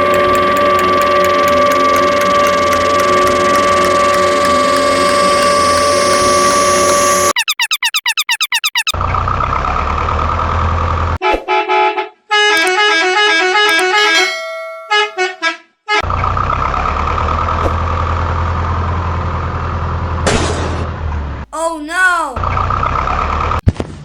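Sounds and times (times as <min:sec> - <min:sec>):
vehicle running with low rumble: 0:09.0 - 0:11.2, 0:16.0 - 0:21.4.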